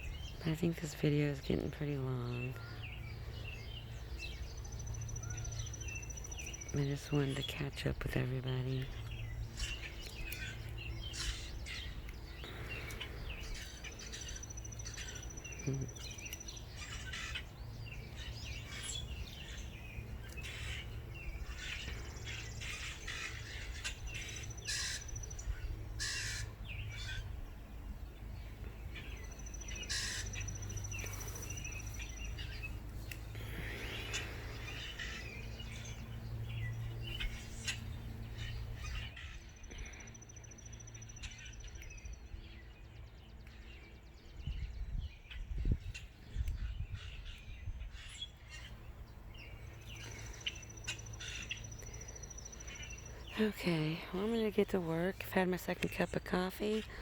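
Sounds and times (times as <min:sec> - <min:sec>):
birds chirping and calling: 0:00.0 - 0:57.0
high thin bird trills: 0:29.2 - 0:36.0.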